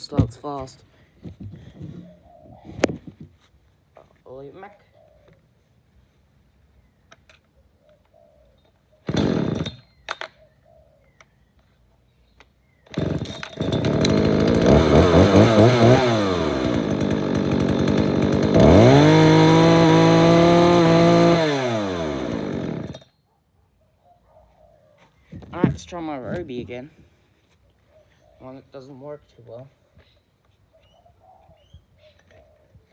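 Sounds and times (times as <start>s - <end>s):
two-stroke engine revving: 9.1s - 9.7s, 13.0s - 23.0s.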